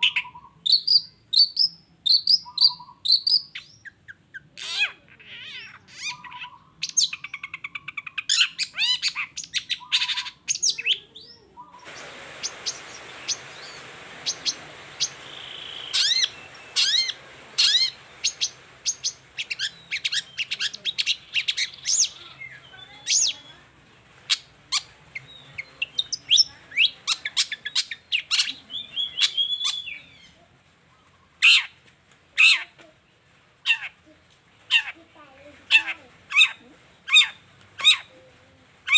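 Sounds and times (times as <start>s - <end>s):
bird chirping and squawking: 0.0s - 23.5s, 24.3s - 30.3s, 35.7s - 38.1s
steady hiss: 11.6s - 28.8s.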